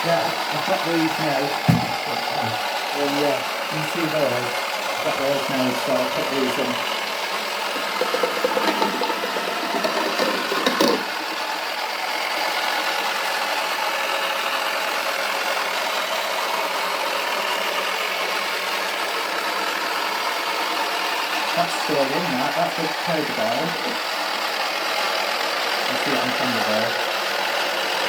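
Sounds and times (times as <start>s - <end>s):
small motor whirring: 0.0s - 28.0s
rattling and knocks: 1.6s - 2.3s, 7.7s - 11.2s.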